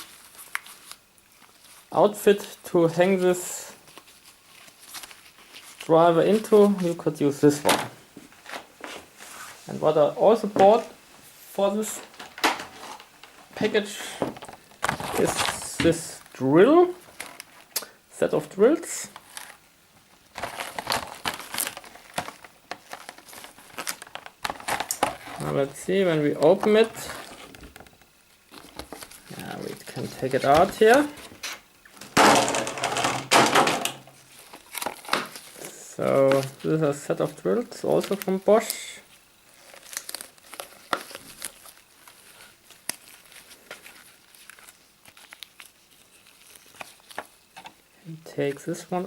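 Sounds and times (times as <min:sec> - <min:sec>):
packaging crinkling: 0:00.0 - 0:02.5, 0:03.1 - 0:07.7, 0:11.6 - 0:18.0, 0:18.7 - 0:47.9
packaging clicks: 0:20.3 - 0:25.4.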